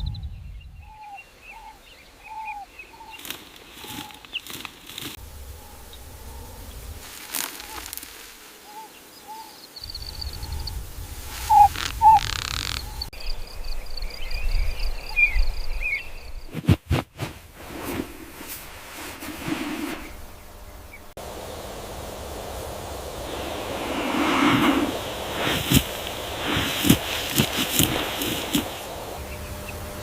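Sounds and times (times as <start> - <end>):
chirping animal calls: 11.3 - 13.1.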